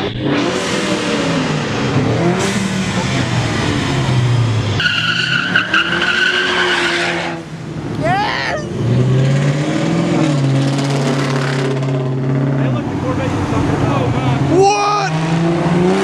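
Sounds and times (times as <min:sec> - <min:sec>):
car engine revving: 0:00.0 - 0:16.0
tyres squealing: 0:04.8 - 0:07.0.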